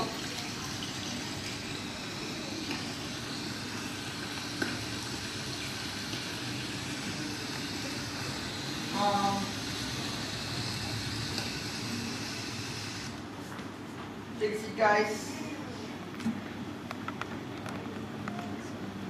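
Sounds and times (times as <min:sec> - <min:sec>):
room hiss: 0:00.0 - 0:13.4.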